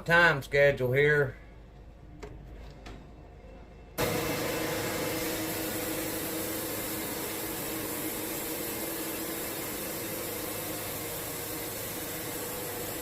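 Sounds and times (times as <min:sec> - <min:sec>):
band saw cutting log: 0:04.0 - 0:13.0.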